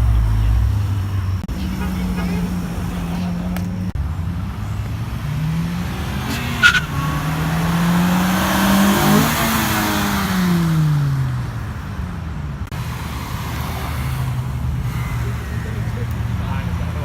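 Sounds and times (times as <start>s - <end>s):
car engine accelerating past: 0.0s - 11.7s
tyre noise: 0.0s - 17.0s.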